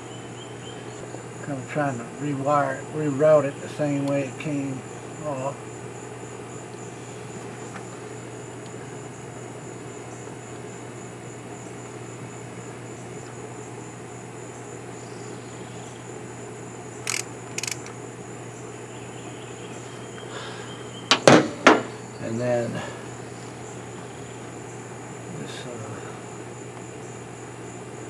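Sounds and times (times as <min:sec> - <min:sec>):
crickets trilling: 0:00.0 - 0:28.0
sharp clicks: 0:17.0 - 0:18.0.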